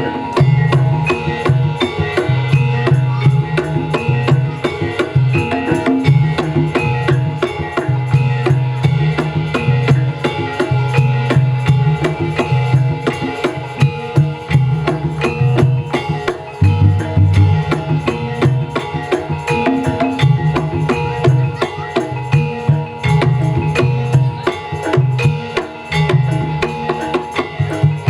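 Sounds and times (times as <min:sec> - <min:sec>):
gamelan music: 0:00.0 - 0:28.0.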